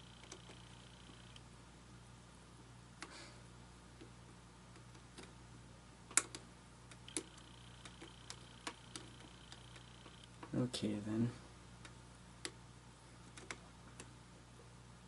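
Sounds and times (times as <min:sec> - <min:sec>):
faint high whine: 0:00.0 - 0:03.6, 0:06.9 - 0:11.6
faint electrical hum: 0:00.0 - 0:15.0.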